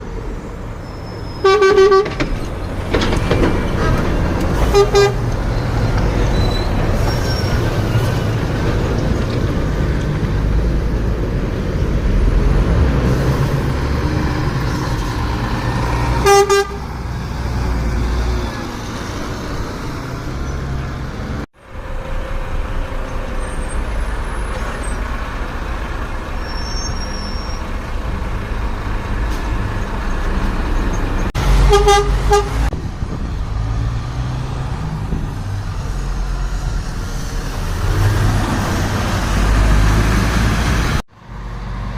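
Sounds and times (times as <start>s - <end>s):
diesel truck engines rumbling: 0.0s - 41.9s
truck horn toots: 1.3s - 2.2s, 4.6s - 5.3s, 16.2s - 17.0s, 31.4s - 32.7s.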